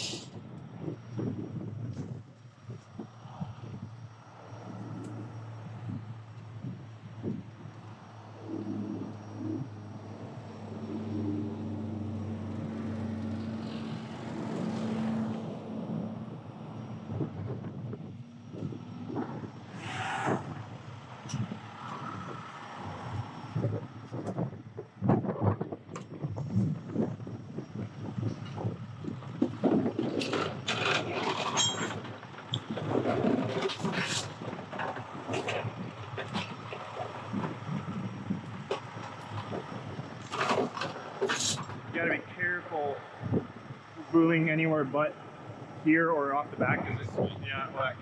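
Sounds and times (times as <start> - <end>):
wind on microphone: 0.0 - 42.5, 43.1 - 44.7, 45.3 - 48.0
low rumble: 0.0 - 42.6
freeway traffic passing: 0.0 - 48.0
diesel truck engine idling: 2.4 - 14.6
metal clanks and scrapes: 29.7 - 37.2, 40.2 - 41.7
metallic ring: 31.5 - 32.0.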